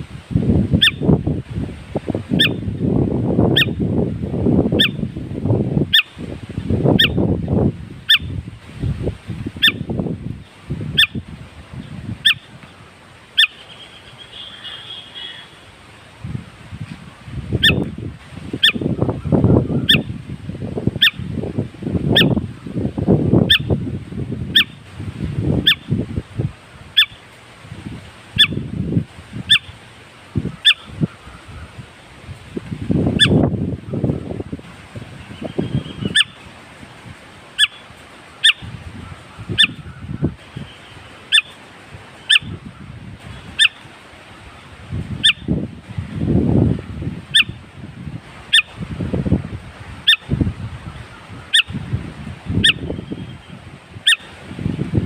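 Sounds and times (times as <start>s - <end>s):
bird trill: 7.0s - 7.2s, 12.2s - 12.5s, 13.4s - 15.5s, 38.4s - 38.7s, 40.6s - 41.6s
louder lower bird sounds: 13.4s - 15.7s, 35.2s - 36.5s.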